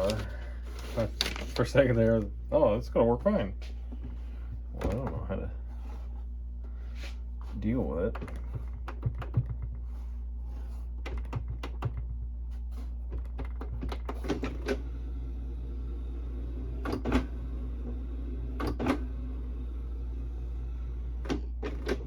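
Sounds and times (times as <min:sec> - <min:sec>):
printer hum: 0:07.6 - 0:22.0.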